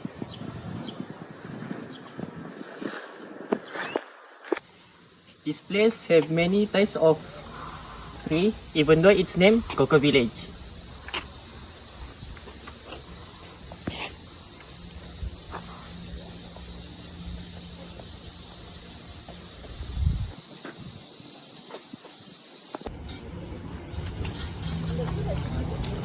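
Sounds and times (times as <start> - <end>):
insects chorus: 0.0 - 26.0.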